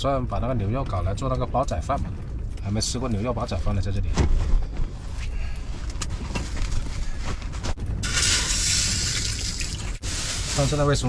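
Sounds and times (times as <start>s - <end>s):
gusting wind buffeting microphone: 0.0s - 11.0s
steady hiss: 8.0s - 11.0s.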